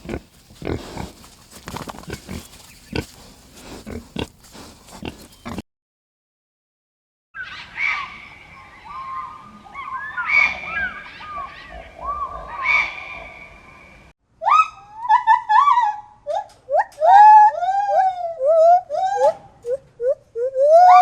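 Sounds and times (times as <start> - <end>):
high rising and falling cries: 7.4 - 16.1.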